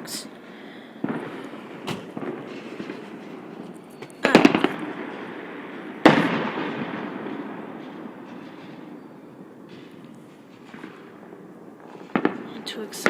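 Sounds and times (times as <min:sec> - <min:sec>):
fireworks crackling bangs: 0:00.9 - 0:13.0
firework bang rumbling: 0:01.0 - 0:11.2.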